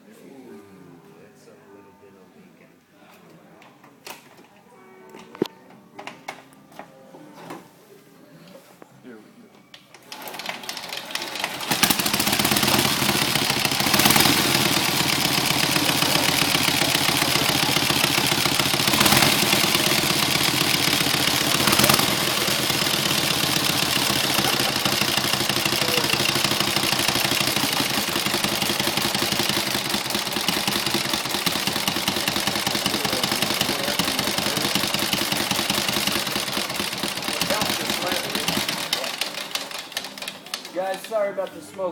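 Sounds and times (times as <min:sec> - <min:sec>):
motorcycle engine running: 0:10.6 - 0:40.3.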